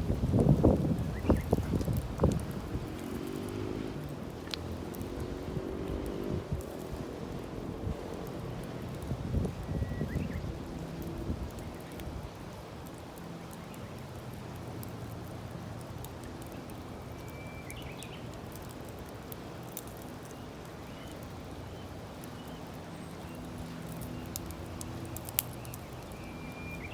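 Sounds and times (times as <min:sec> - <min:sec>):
campfire crackling and popping: 0:00.0 - 0:26.9
birds chirping: 0:00.6 - 0:06.4, 0:16.4 - 0:18.5, 0:19.9 - 0:26.9.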